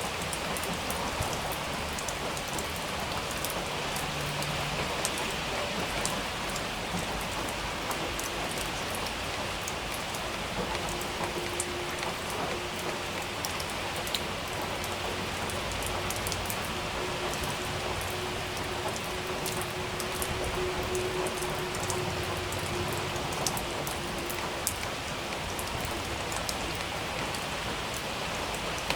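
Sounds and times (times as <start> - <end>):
steady rain: 0.0 - 28.9.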